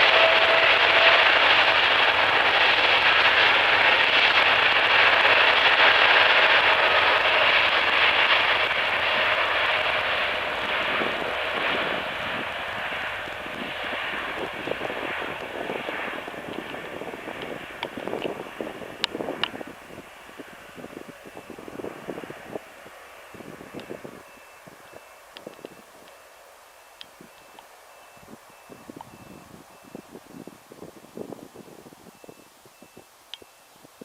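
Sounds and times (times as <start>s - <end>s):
aircraft engine roar with whine: 0.0s - 34.0s.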